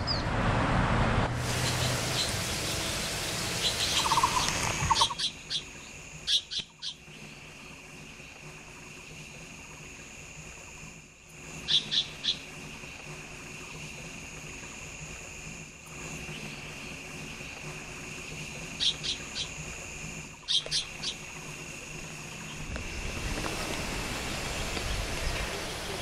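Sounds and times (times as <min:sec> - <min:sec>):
steady high whine: 0:00.0 - 0:26.0
bird trill: 0:01.6 - 0:07.2, 0:11.6 - 0:12.5, 0:18.7 - 0:19.6, 0:20.4 - 0:21.3.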